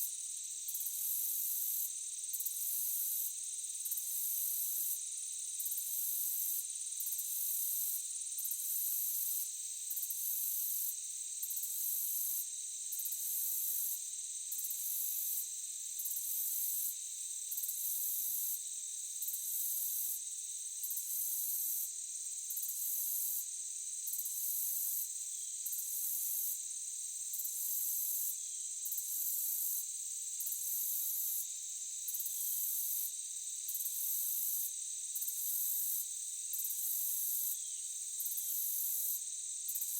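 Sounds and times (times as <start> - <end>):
cricket trill: 0.0 - 39.9
insects droning: 13.8 - 39.9.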